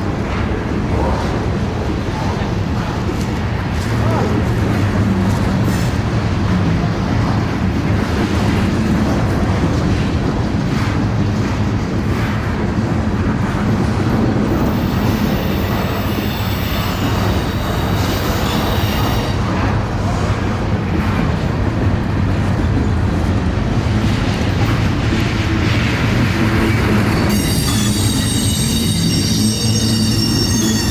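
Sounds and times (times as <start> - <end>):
train passing rumble: 0.0 - 30.9
high-pitched squeal: 27.0 - 30.9.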